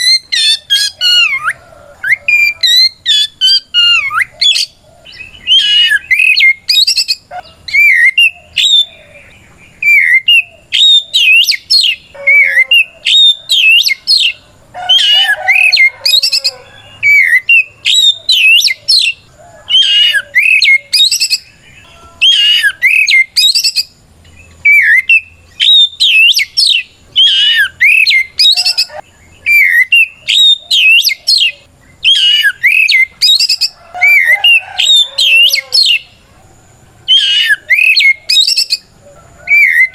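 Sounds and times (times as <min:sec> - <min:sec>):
bird whistling song: 0:00.0 - 0:36.2, 0:37.1 - 0:39.9.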